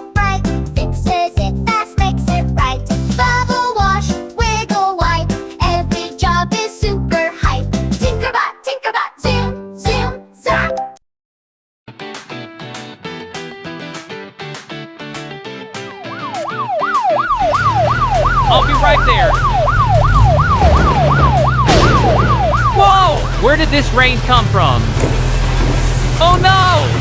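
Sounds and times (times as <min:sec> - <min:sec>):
children's cartoon music: 0:00.0 - 0:11.0, 0:16.2 - 0:20.2
police siren wailing: 0:16.0 - 0:24.8
low engine rumble: 0:18.4 - 0:27.0.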